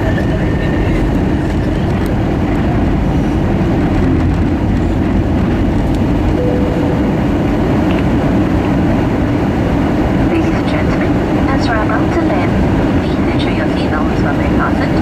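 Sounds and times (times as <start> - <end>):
airliner cabin engine rumble: 0.0 - 15.0.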